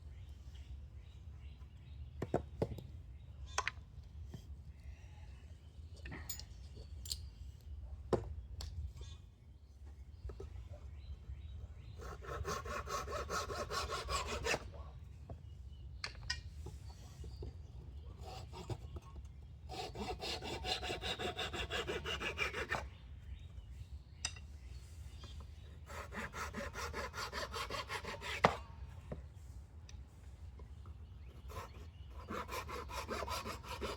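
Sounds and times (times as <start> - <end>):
wood being worked by hand: 12.0 - 14.7, 18.2 - 22.8, 25.8 - 29.2, 31.3 - 33.9.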